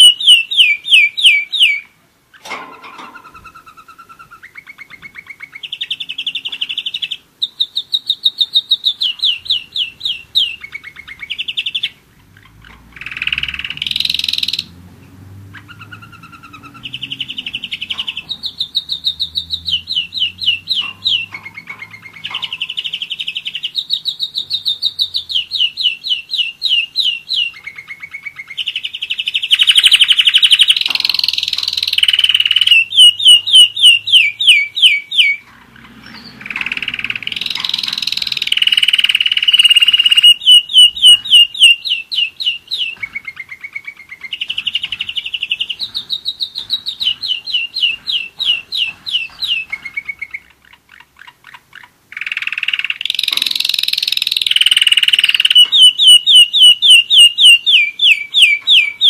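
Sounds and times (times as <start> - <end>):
canary singing trilled rolls: 0.0 - 59.0.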